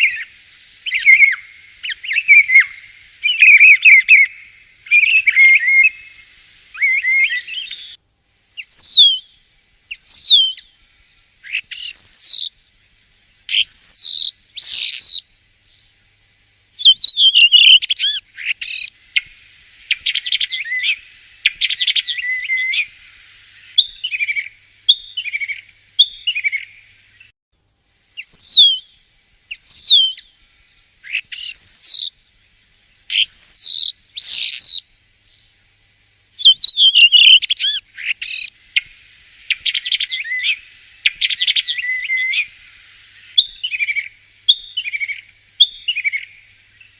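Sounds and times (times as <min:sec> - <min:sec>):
starling singing: 0:00.8 - 0:06.2, 0:11.5 - 0:12.5, 0:13.5 - 0:15.2, 0:16.8 - 0:18.9, 0:28.2 - 0:28.8, 0:31.1 - 0:32.1, 0:33.1 - 0:34.8, 0:36.4 - 0:38.5.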